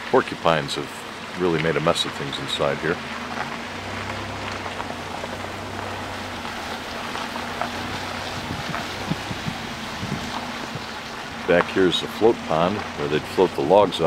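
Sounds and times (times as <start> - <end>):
car engine humming: 0.0 - 14.0.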